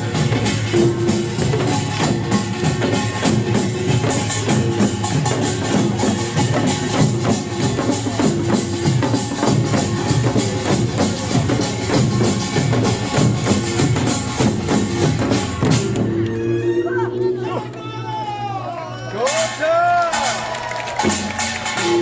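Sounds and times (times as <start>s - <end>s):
barrel drums: 0.0s - 16.5s
hourglass drums: 0.0s - 16.6s.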